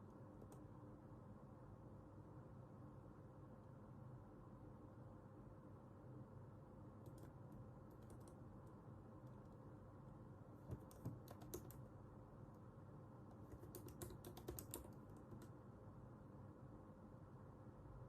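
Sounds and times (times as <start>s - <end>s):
low room hum: 0.0s - 18.0s
keyboard typing: 7.0s - 9.6s, 10.6s - 11.9s, 13.2s - 15.6s.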